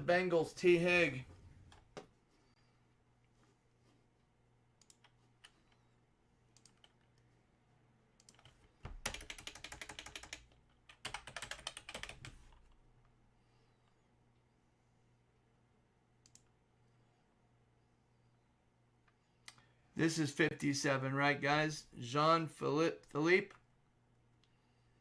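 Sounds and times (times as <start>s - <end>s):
computer keyboard typing: 8.2s - 12.8s.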